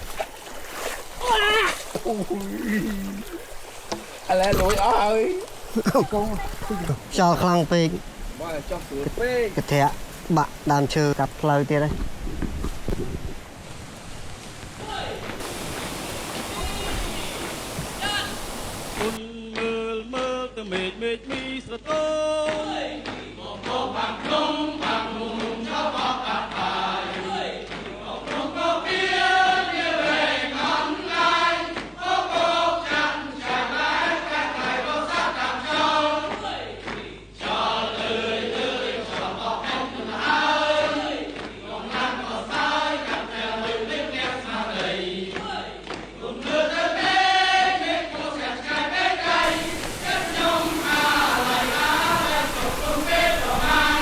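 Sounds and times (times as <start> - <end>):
voices singing together: 14.8 - 54.0.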